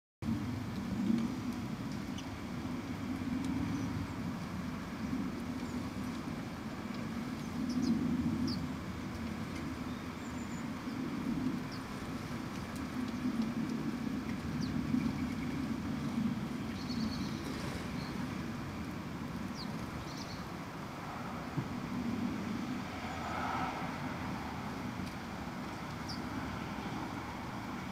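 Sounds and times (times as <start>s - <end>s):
road traffic rumble: 0.2s - 27.9s
small birds chirping: 6.9s - 20.6s, 25.0s - 26.4s.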